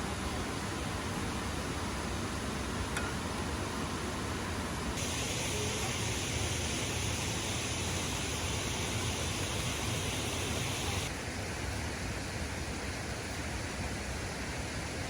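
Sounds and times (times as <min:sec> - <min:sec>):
falling water rushing: 0:05.0 - 0:11.1.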